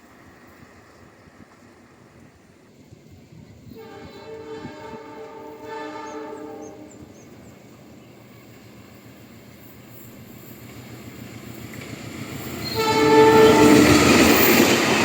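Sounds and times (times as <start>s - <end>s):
train rumbling: 0.0s - 15.0s
train horn blast: 3.6s - 7.2s, 12.6s - 14.3s.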